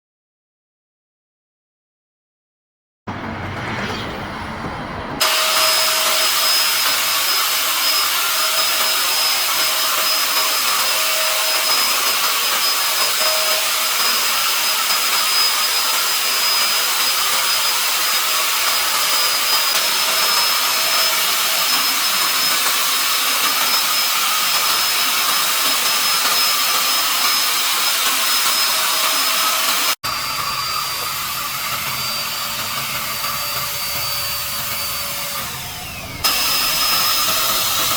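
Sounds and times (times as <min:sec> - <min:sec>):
paint spray gun running: 0:17.9 - 0:37.9.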